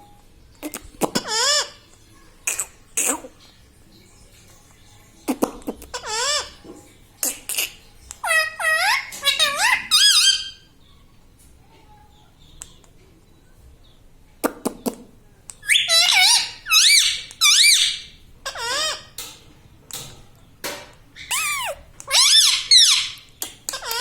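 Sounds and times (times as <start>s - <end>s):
parakeet shrill calls: 7.6s - 10.7s, 15.6s - 19.1s, 21.2s - 24.0s.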